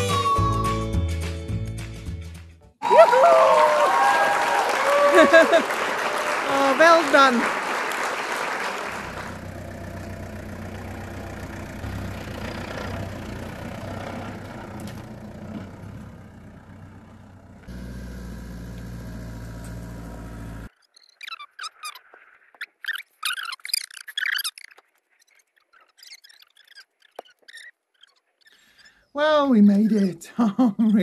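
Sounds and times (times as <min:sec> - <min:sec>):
engine running under load: 0:08.8 - 0:20.7.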